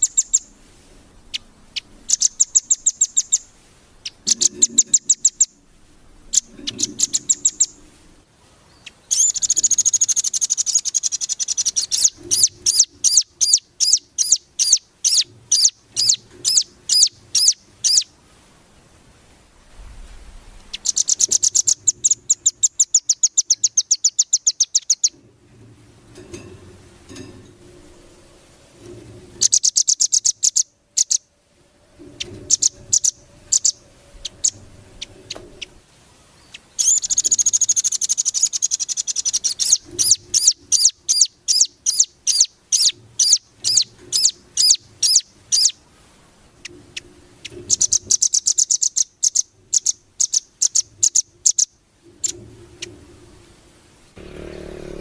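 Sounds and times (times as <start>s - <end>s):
songbird singing trills: 0.0s - 0.6s, 1.2s - 7.9s, 8.6s - 18.2s, 20.2s - 25.2s, 29.4s - 31.3s, 32.0s - 45.8s, 46.6s - 53.0s.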